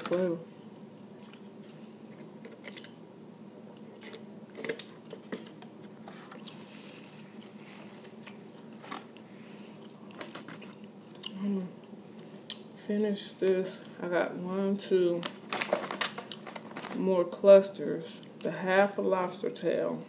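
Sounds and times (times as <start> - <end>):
person chewing: 3.8 - 5.2, 6.3 - 8.5, 9.1 - 12.7.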